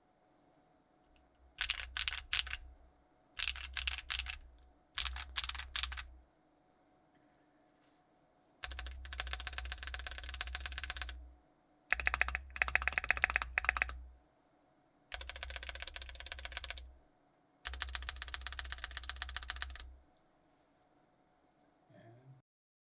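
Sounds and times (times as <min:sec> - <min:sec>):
typing on mechanical keyboard: 0:01.5 - 0:02.6, 0:03.4 - 0:06.1, 0:08.6 - 0:11.2, 0:11.9 - 0:14.0, 0:15.1 - 0:16.9, 0:17.6 - 0:19.9.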